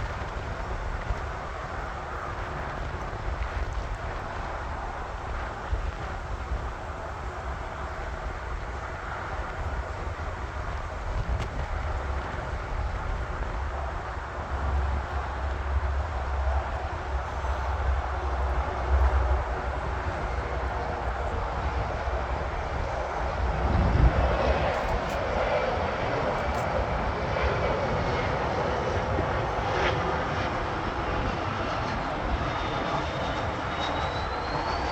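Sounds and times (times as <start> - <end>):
jet engines rushing: 0.0 - 34.9.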